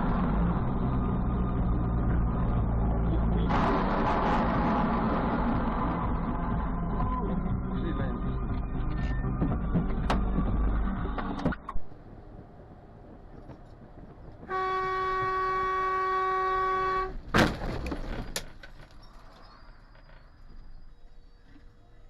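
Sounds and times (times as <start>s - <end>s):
car horn blaring: 14.5s - 17.2s
collision bang with clatter: 17.3s - 18.4s.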